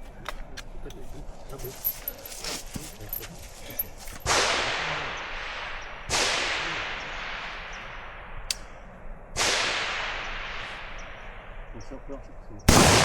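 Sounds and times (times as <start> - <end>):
rifle shots echoing: 4.2 - 8.7, 9.4 - 11.8, 12.7 - 13.0.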